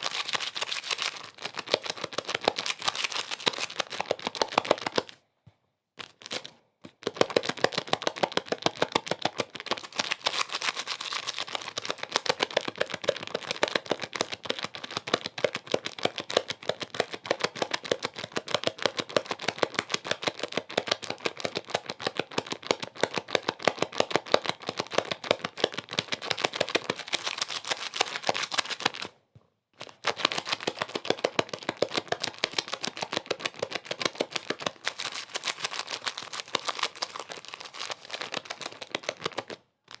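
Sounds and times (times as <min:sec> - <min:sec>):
fast irregular crackling clicks: 0:30.0 - 0:40.0.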